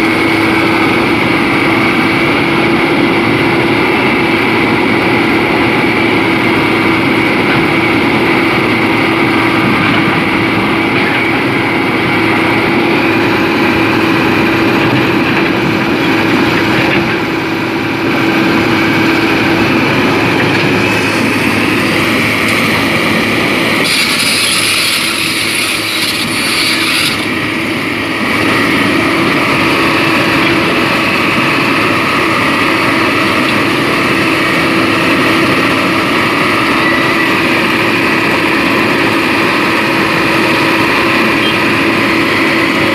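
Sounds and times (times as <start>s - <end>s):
diesel engine running under load: 0.0s - 42.9s
hiss: 23.8s - 27.3s.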